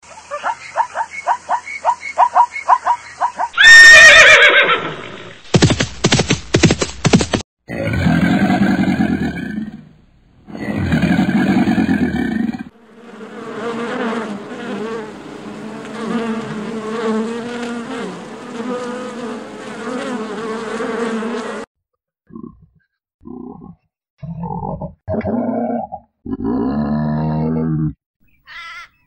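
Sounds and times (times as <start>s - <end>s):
flying insects buzzing: 12.7s - 21.7s.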